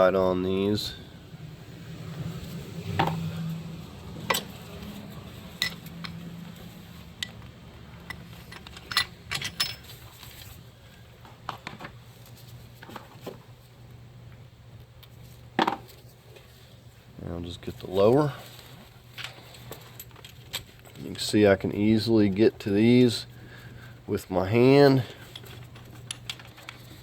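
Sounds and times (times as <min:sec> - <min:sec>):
faint steady hum: 0:00.0 - 0:27.0
metal bolts and tools clinking: 0:04.3 - 0:04.6, 0:05.5 - 0:06.3, 0:07.2 - 0:10.4.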